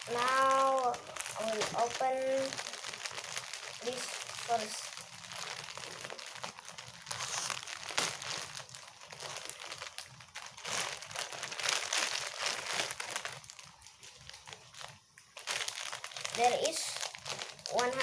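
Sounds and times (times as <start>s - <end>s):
packaging crinkling and rustling: 0.0s - 18.0s.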